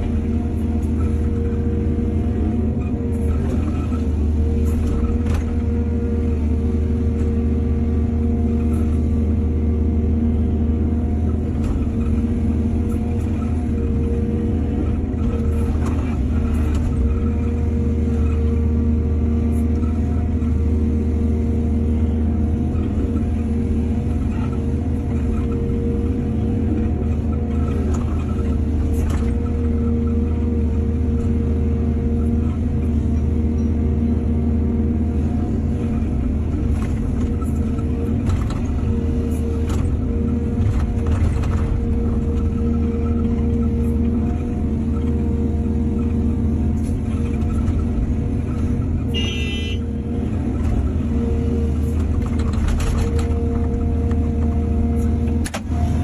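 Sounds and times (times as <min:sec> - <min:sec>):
machine knocking and scraping soil: 0:00.0 - 0:09.2, 0:11.1 - 0:20.8, 0:22.5 - 0:33.8, 0:35.1 - 0:56.0
excavator diesel engine rumbling: 0:00.0 - 0:56.0.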